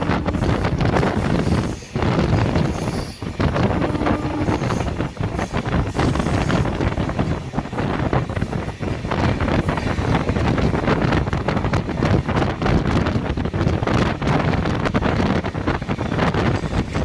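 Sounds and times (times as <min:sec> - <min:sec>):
train rumbling: 0:00.0 - 0:17.0
wind buffeting microphone: 0:00.0 - 0:17.0.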